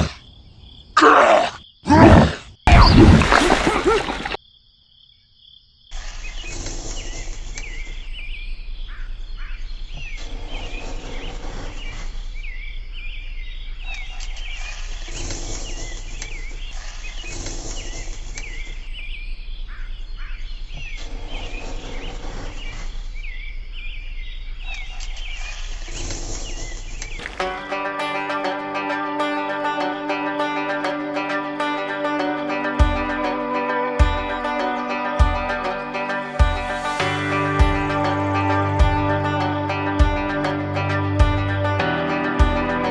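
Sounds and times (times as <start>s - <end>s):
high chirps of birds or insects: 0.0s - 1.9s, 2.5s - 27.3s.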